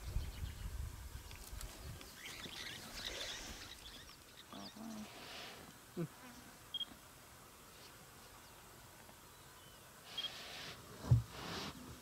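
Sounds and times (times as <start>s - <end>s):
small birds chirping: 0.0s - 6.1s, 6.7s - 10.8s.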